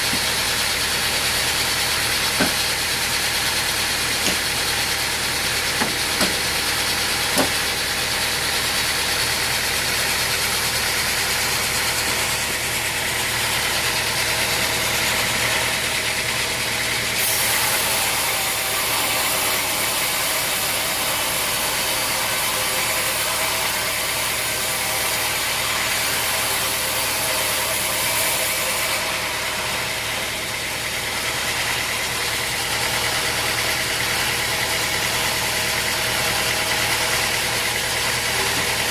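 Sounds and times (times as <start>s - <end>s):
sawmill machinery hum: 0.0s - 38.9s
sharp knocks: 2.3s - 2.6s, 4.2s - 4.5s, 5.8s - 6.4s, 7.3s - 7.6s.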